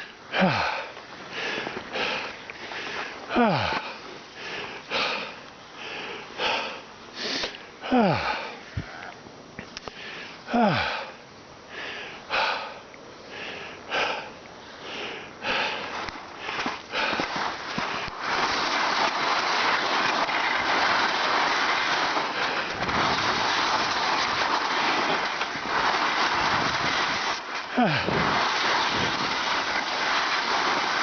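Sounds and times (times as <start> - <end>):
person breathing hard: 0.0 - 9.2, 9.8 - 18.2, 27.7 - 28.2
loud steady rushing hiss: 0.0 - 31.0.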